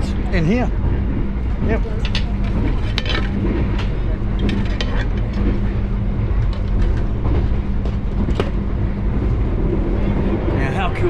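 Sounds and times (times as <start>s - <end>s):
constant hum: 0.0s - 11.0s
train carriage rumble: 0.0s - 11.0s
sharp clicks and knocks: 1.6s - 5.8s.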